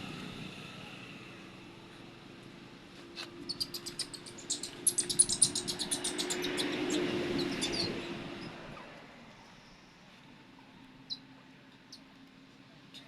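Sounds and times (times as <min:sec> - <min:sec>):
baby monkey squeaking: 0:03.4 - 0:08.5.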